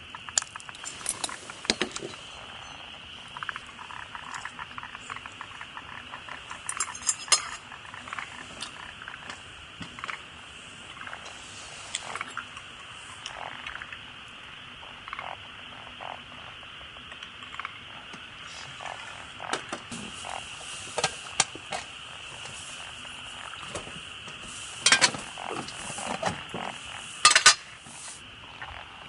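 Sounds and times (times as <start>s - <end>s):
rapidly pulsed calls: 0.0s - 6.8s
frogs calling: 0.0s - 29.0s.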